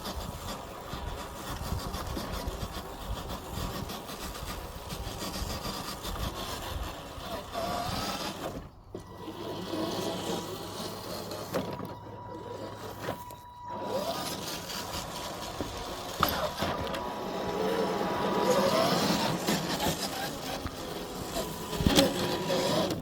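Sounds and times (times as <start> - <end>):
electric motor and gears whining: 0.0 - 23.0
tyres crunching over leaves: 9.2 - 22.9.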